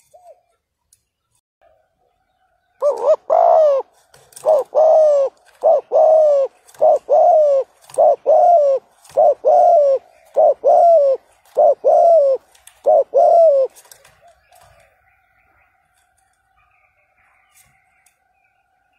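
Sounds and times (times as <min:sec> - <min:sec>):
dove cooing: 0:00.0 - 0:00.5, 0:02.8 - 0:14.9.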